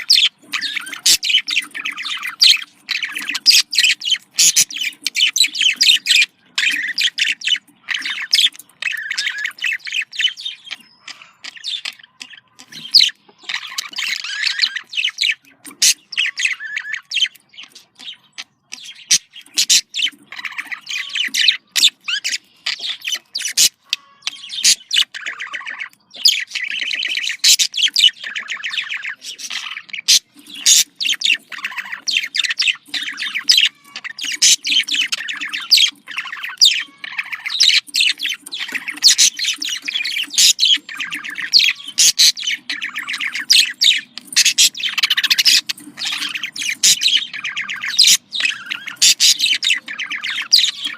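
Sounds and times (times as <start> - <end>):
budgerigars chattering and warbling: 0.0 - 50.9.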